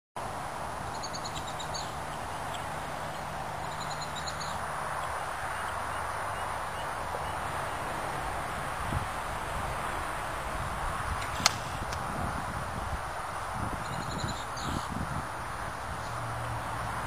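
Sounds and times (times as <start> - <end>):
outdoor background hiss: 0.2 - 17.0
high bird chirps: 0.9 - 7.4, 13.8 - 14.9.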